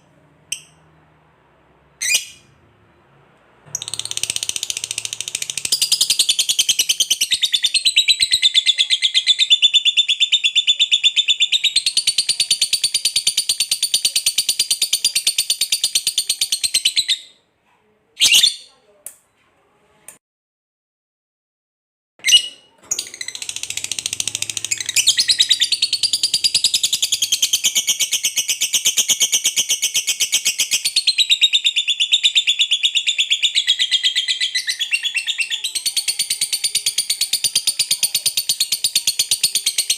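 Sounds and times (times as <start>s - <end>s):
lovebird shrill chatter: 2.0s - 2.5s, 22.3s - 31.2s.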